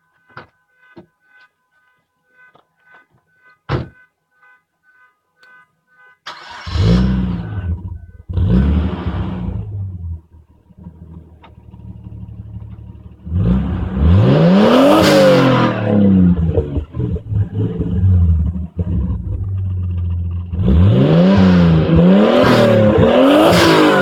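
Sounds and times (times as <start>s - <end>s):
car engine starting and revving: 6.2s - 24.0s.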